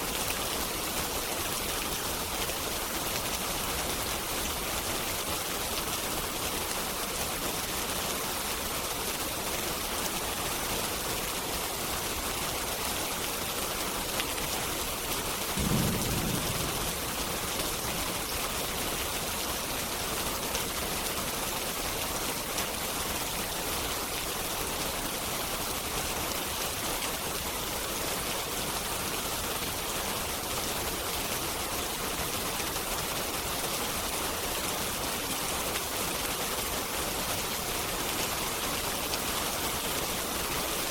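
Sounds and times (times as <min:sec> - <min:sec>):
steady rain hiss: 0:00.0 - 0:40.9
distant thunder rumble: 0:15.6 - 0:18.1.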